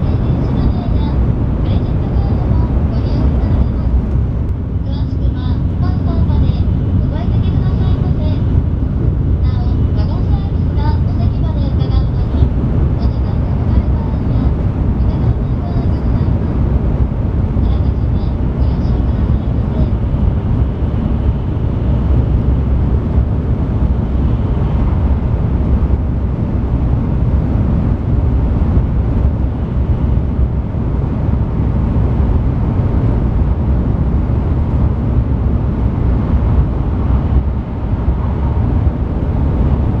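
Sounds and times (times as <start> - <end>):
train cabin low rumble: 0.0 - 40.0.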